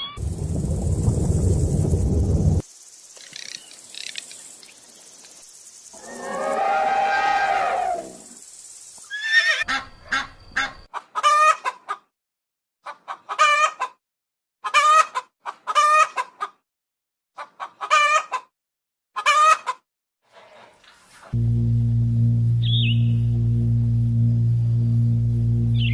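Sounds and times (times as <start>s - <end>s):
animal calling wavering calls: 6.0s - 8.2s.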